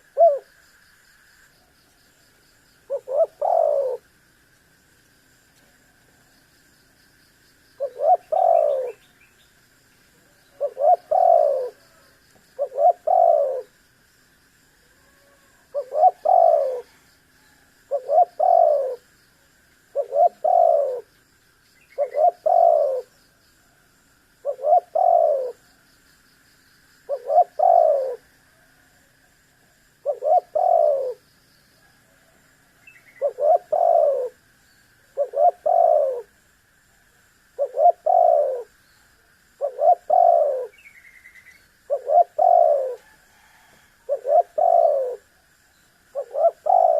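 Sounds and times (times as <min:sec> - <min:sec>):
dove cooing: 0:00.0 - 0:00.6, 0:02.8 - 0:04.1, 0:07.8 - 0:09.2, 0:10.3 - 0:13.8, 0:15.0 - 0:19.1, 0:19.9 - 0:21.1, 0:21.9 - 0:23.2, 0:24.4 - 0:25.6, 0:27.1 - 0:28.9, 0:30.0 - 0:31.2, 0:31.9 - 0:34.4, 0:35.1 - 0:36.4, 0:37.6 - 0:38.8, 0:39.6 - 0:40.9, 0:41.9 - 0:45.5, 0:46.1 - 0:46.9.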